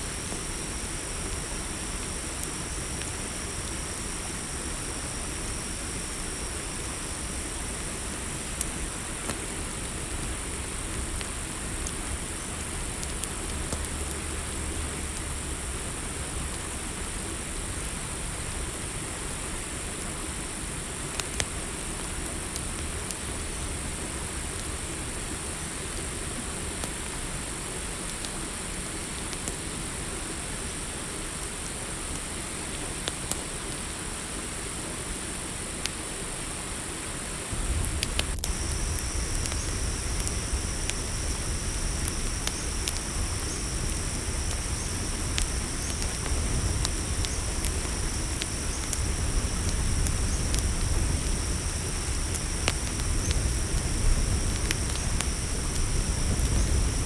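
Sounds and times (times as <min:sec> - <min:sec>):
low insect trill: 0:00.0 - 0:09.1, 0:37.5 - 0:57.0
crickets chirring: 0:00.0 - 0:57.0
campfire crackling and popping: 0:00.1 - 0:29.7, 0:33.0 - 0:33.4, 0:37.4 - 0:57.0
low rumble: 0:37.5 - 0:57.0.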